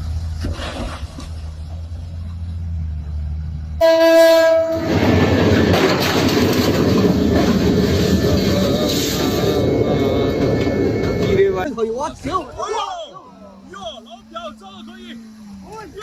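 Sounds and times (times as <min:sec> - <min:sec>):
horn blast: 0:03.8 - 0:05.0
loud steady rushing noise: 0:04.8 - 0:16.0.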